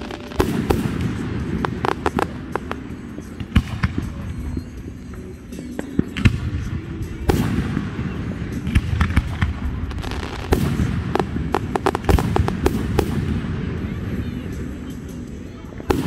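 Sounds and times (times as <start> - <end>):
fireworks bangs and cracks: 0.0 - 4.3, 5.8 - 14.1.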